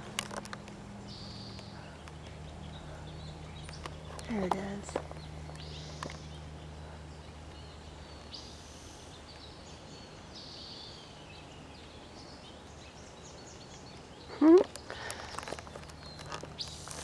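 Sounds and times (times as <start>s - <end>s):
faint bird chirps and trills: 0.9s - 17.0s.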